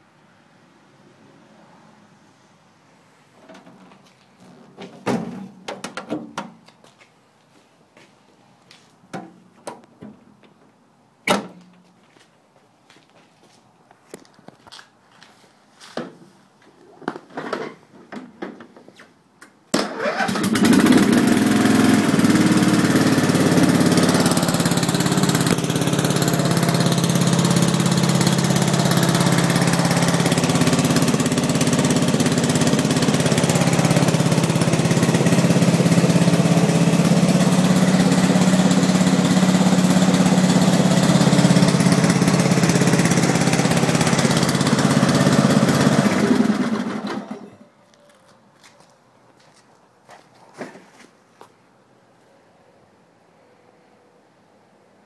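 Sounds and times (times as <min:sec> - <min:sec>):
lawn tractor engine running: 0:19.8 - 0:47.6.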